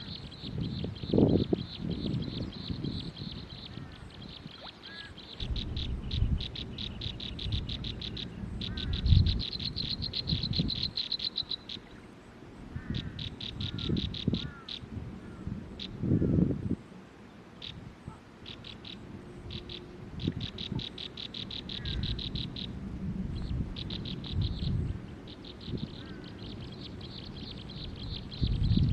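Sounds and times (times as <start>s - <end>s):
nestling birds chirping: 0.0s - 16.0s, 18.4s - 28.9s
low rumbling noise: 5.3s - 11.0s, 18.8s - 28.9s.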